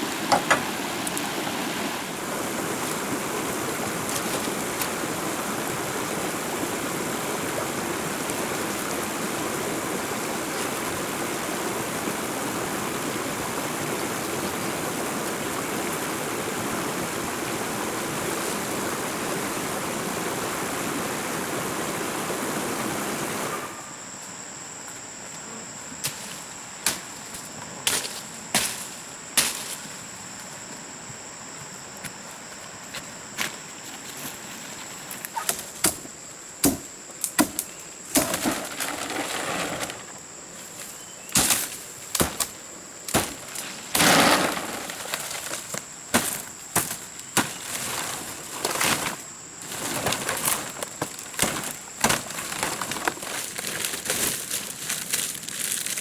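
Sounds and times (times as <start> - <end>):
running water rushing: 0.0 - 23.7.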